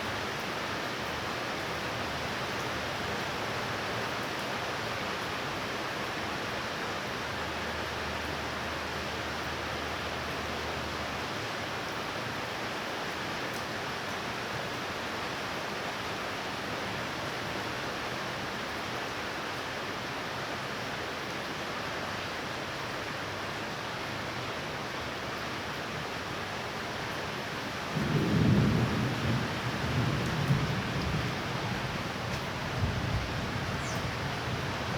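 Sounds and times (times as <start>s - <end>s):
heavy rain falling: 23.8s - 34.9s.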